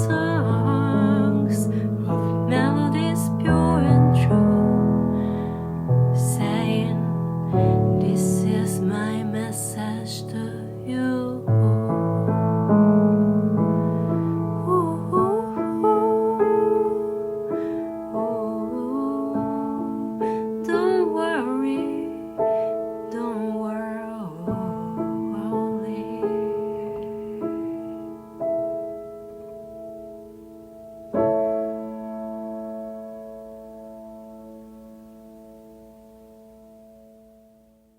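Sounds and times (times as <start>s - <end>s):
woman singing: 0.0s - 12.7s, 14.5s - 28.3s.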